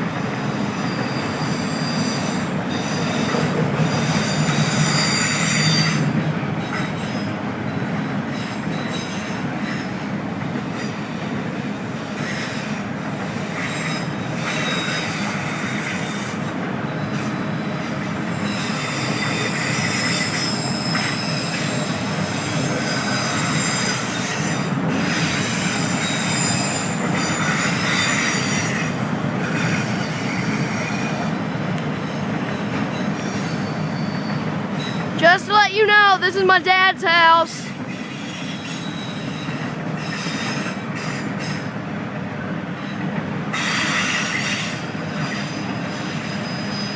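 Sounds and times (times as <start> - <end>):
train wheels rolling on rails: 0.0 - 35.7, 37.5 - 46.9
high-pitched wheel squeal: 0.5 - 7.4, 18.3 - 31.4, 32.0 - 35.1, 37.5 - 41.7, 43.6 - 46.9.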